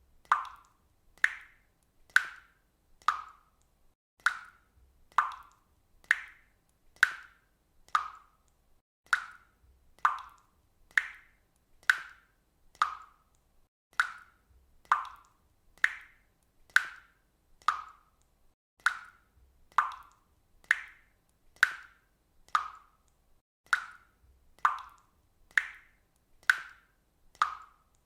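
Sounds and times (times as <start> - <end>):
water dripping with ringing plinks: 0.2 - 23.1, 23.7 - 28.0.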